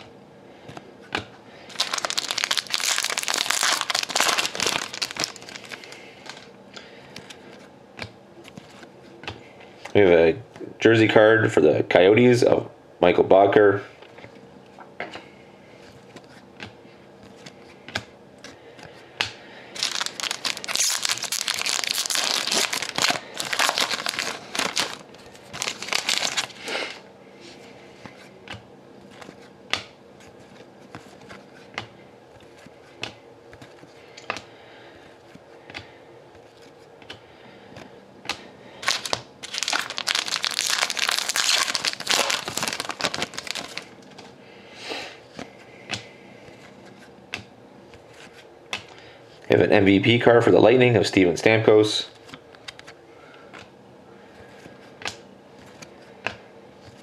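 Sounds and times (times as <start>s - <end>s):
wrappers crinkling: 1.7s - 6.5s, 19.8s - 27.0s, 38.8s - 44.3s.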